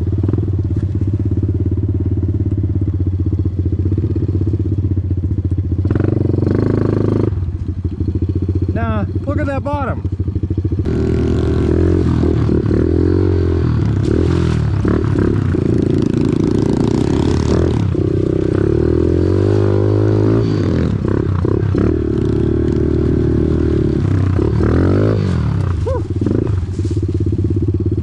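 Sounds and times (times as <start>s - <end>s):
off-road vehicle engine revving: 5.8s - 7.5s, 10.7s - 27.2s.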